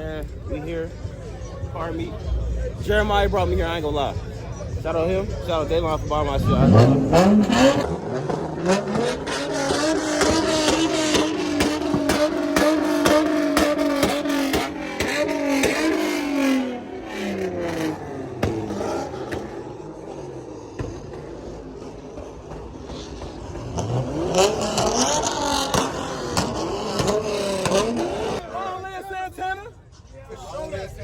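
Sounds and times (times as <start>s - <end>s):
car engine revving: 0.0s - 29.0s
exhaust pops: 6.2s - 28.4s.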